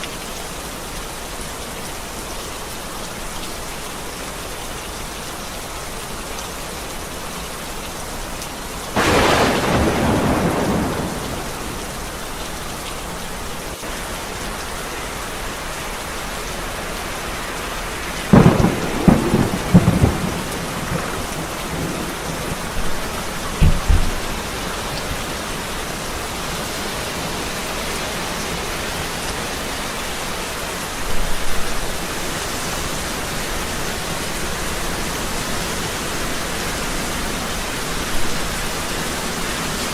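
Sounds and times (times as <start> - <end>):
steady rain falling: 0.0 - 39.9
thunder: 9.0 - 12.2, 18.3 - 25.0.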